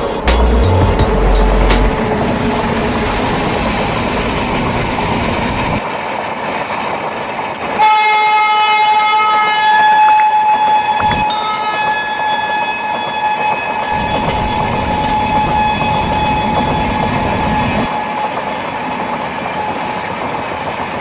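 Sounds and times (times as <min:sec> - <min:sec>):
passenger train passing at speed: 0:00.0 - 0:21.0
train horn long blast: 0:07.8 - 0:11.1.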